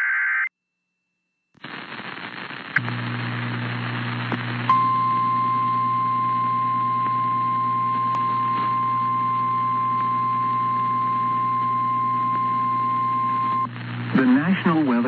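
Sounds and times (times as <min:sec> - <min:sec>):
low steady hum: 0:02.8 - 0:14.4.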